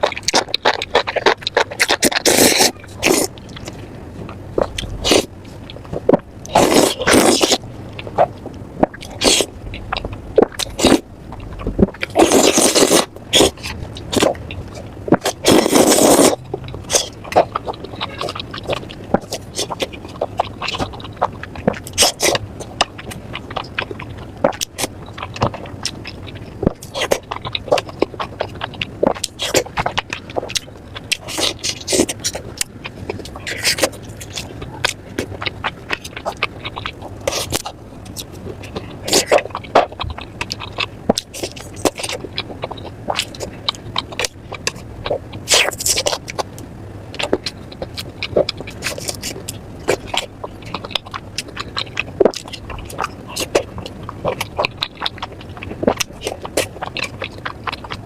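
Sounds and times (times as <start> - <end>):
slurping: 0.0 - 3.8, 4.6 - 46.4
crunching and chewing: 0.0 - 58.0.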